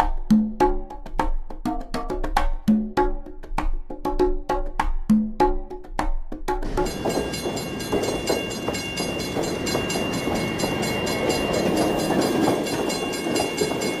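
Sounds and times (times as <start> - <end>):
wheels clickety-clack: 6.6 - 14.0
train rumble: 6.8 - 14.0.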